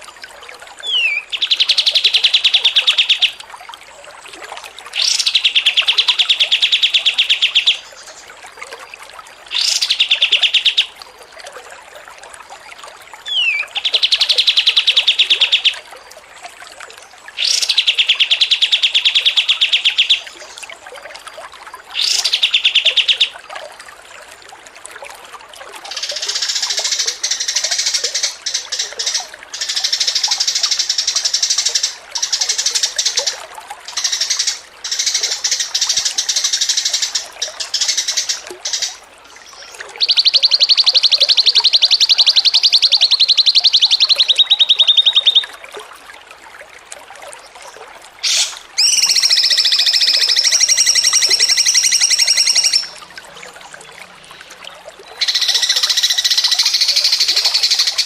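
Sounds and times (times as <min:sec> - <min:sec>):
songbird trilling: 0:00.8 - 0:03.4, 0:13.3 - 0:15.8, 0:33.9 - 0:45.6, 0:48.2 - 0:53.0, 0:55.1 - 0:58.0.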